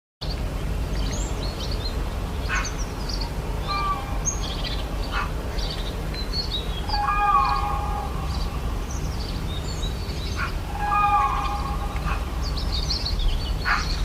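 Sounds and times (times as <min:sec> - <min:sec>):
birds chirping: 0:00.2 - 0:14.0
steady low rumble: 0:00.2 - 0:14.0
whistled bird notes: 0:05.6 - 0:14.0.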